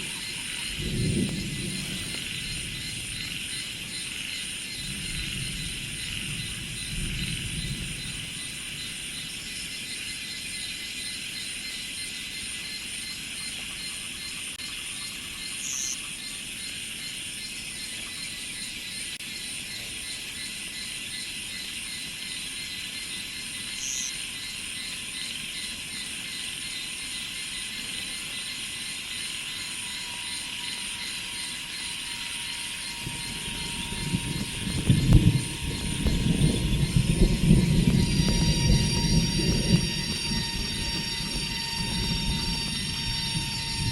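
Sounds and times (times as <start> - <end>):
insects trilling: 0.0 - 43.9
low rumble: 32.9 - 43.9.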